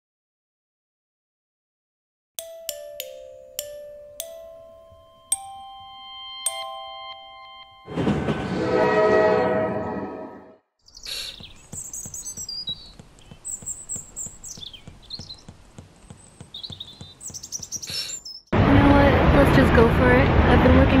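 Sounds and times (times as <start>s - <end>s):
train rushing past: 7.9s - 10.2s, 18.6s - 21.0s
birds chirping: 10.8s - 18.5s.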